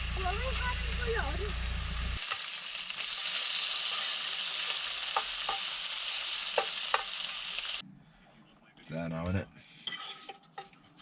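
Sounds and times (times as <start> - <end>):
bacon sizzling in a pan: 0.0 - 7.8
sharp pops of frying fat: 3.9 - 5.8, 6.4 - 7.4.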